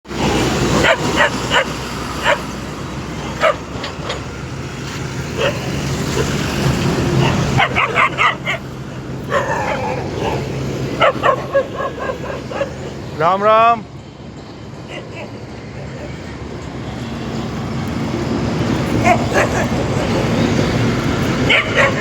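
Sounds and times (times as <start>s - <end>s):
dog barking and yipping: 0.4s - 4.3s, 5.3s - 13.1s, 14.9s - 16.3s, 18.6s - 22.0s.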